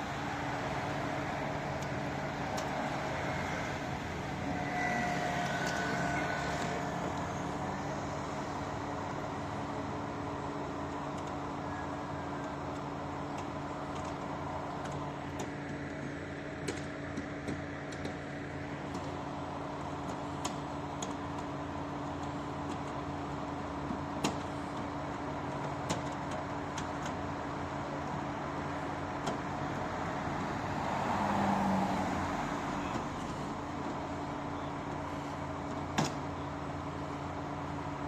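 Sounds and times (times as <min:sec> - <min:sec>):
large vehicle engine hum: 0:00.0 - 0:38.0
faint squeal: 0:04.3 - 0:07.8.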